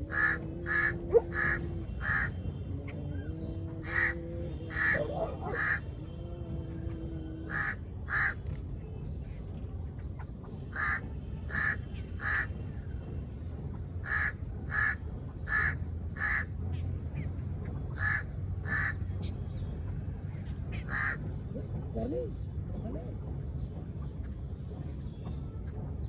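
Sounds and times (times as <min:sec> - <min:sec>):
crow cawing: 0:00.0 - 0:02.3, 0:03.8 - 0:05.8, 0:07.5 - 0:08.4, 0:10.8 - 0:12.5, 0:14.0 - 0:16.5, 0:18.0 - 0:19.0, 0:20.9 - 0:21.2.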